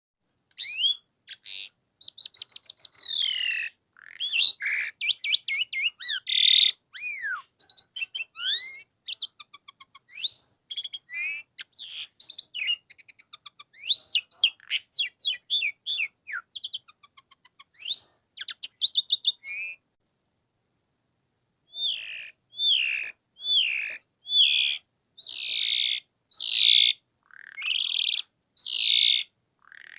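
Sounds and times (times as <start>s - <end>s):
bird singing varied whistles: 0.5s - 17.1s, 17.7s - 19.8s, 21.7s - 29.2s.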